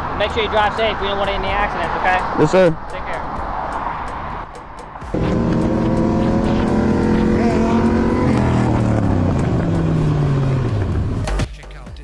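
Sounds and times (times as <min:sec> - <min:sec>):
motorcycle engine revving: 0:05.0 - 0:11.4.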